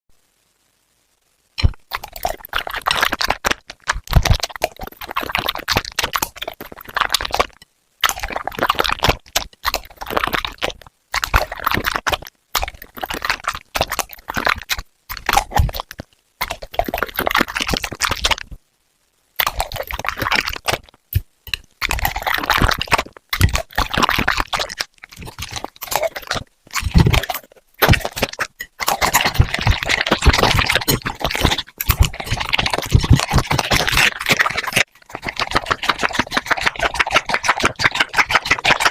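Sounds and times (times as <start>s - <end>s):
dog chewing and crunching food: 1.6s - 18.5s, 19.4s - 38.9s.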